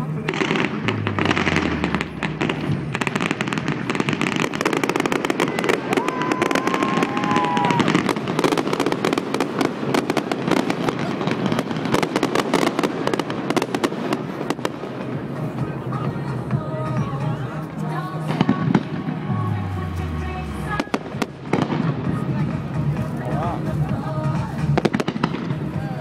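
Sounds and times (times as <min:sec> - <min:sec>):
firework whistling: 0:00.0 - 0:14.4
fireworks crackling and popping: 0:00.0 - 0:26.0.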